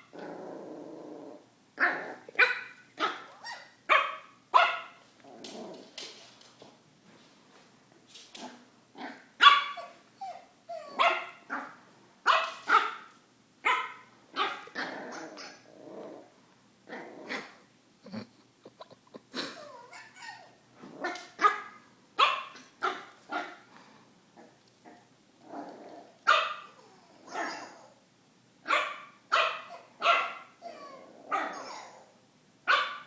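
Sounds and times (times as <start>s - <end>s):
puppy yapping: 1.8s - 5.0s, 9.1s - 15.6s, 19.7s - 23.6s, 26.3s - 27.9s, 28.7s - 32.1s.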